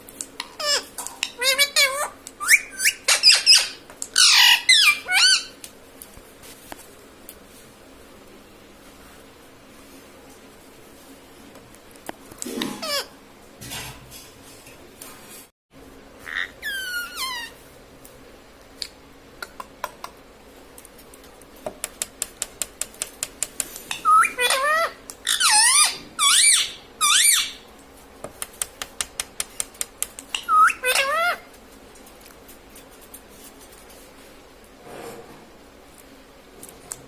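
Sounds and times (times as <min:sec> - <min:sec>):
parakeet squawking: 0:00.4 - 0:05.6, 0:12.6 - 0:13.2, 0:16.2 - 0:17.6, 0:23.9 - 0:27.6, 0:30.3 - 0:31.5.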